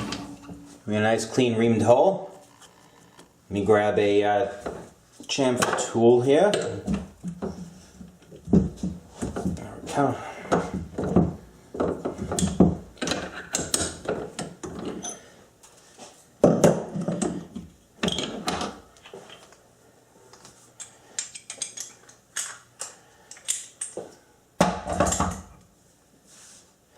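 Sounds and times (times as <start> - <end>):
metal tools clicking and knocking: 20.8 - 24.0.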